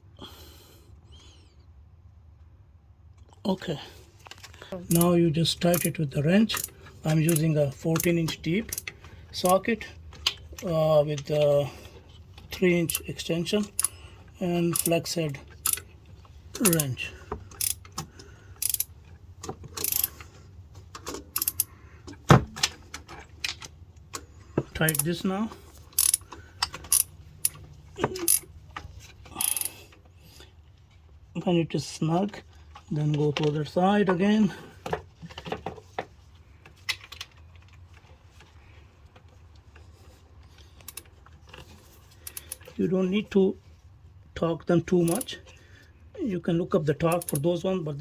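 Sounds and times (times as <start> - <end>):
ratchet wrench clicking: 5.7 - 5.9, 6.5 - 6.7, 8.7 - 8.9, 12.9 - 13.1, 14.7 - 15.0, 15.6 - 15.9, 16.6 - 16.9, 17.5 - 17.9, 18.6 - 18.9, 19.8 - 20.1, 21.3 - 21.7, 24.9 - 25.1, 25.9 - 26.3, 26.9 - 27.6, 29.4 - 29.7.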